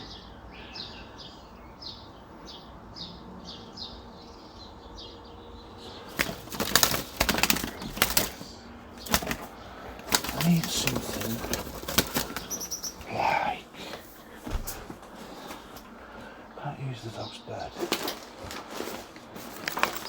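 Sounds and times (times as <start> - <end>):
bird wings flapping: 6.0 - 16.4, 17.8 - 20.0.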